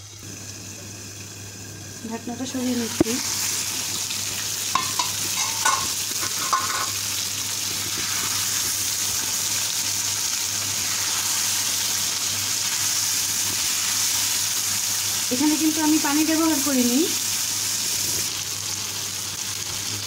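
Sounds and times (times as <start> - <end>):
chicken sizzling in oil: 0.0 - 20.0
spatula clinking on pan: 4.7 - 7.0
spatula stirring in pan: 4.7 - 7.0.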